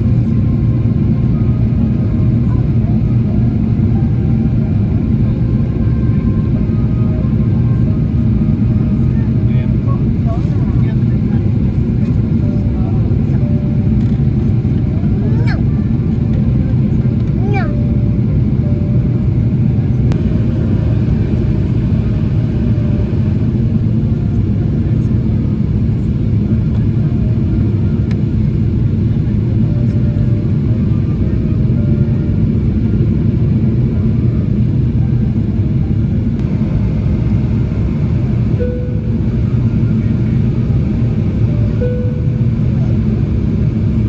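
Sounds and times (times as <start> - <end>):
airplane cabin rumble: 0.0 - 44.0
faint steady hum: 36.4 - 44.0.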